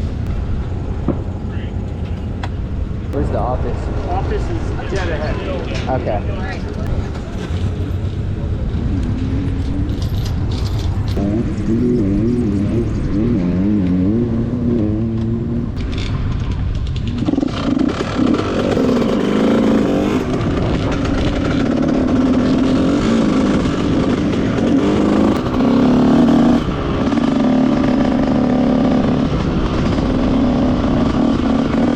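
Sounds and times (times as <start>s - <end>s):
dirt bike engine revving: 11.1s - 16.1s, 17.0s - 31.9s.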